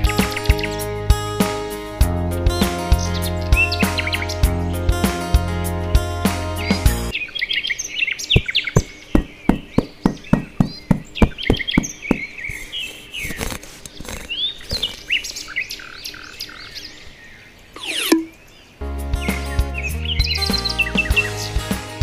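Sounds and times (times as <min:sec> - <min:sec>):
birds chirping: 0:00.0 - 0:01.0, 0:02.6 - 0:04.6, 0:06.6 - 0:21.7
trowel tapping on sand: 0:08.4 - 0:12.7.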